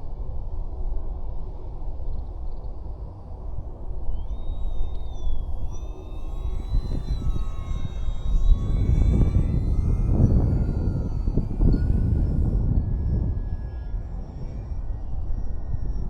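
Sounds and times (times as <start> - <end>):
wind buffeting microphone: 6.7 - 14.8.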